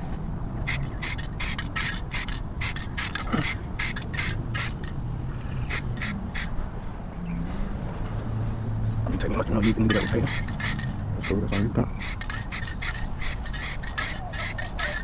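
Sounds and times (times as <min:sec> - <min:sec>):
spray can hissing bursts: 0:00.6 - 0:04.9, 0:05.7 - 0:06.6, 0:09.6 - 0:15.0.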